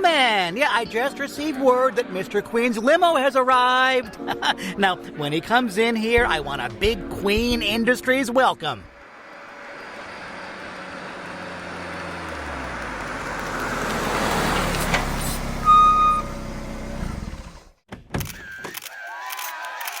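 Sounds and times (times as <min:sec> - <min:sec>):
car engine: 0:08.9 - 0:17.8
short beep: 0:15.6 - 0:16.4.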